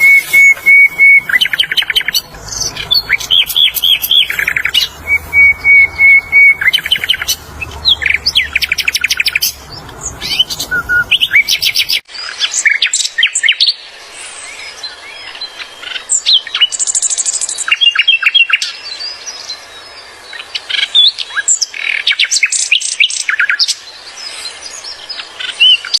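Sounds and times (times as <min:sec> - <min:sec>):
low hum: 0:00.0 - 0:11.9
bird singing chirps and trills: 0:00.0 - 0:26.0.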